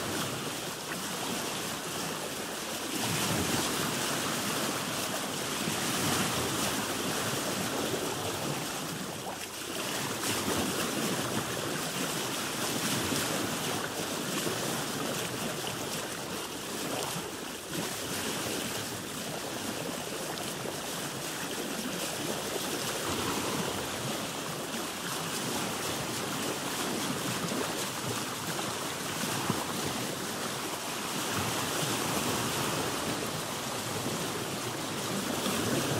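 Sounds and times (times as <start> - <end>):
ocean waves rushing: 22.3 - 35.9.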